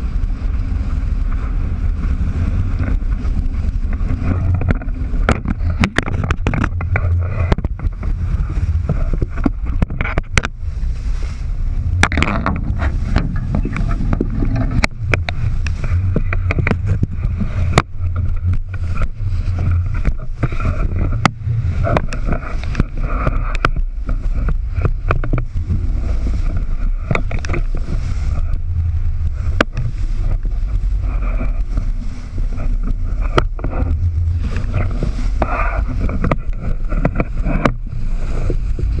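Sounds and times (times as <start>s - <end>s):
wind and water rumble: 0.0s - 39.0s
sharp knocks and clicks: 4.5s - 8.1s, 12.0s - 25.6s.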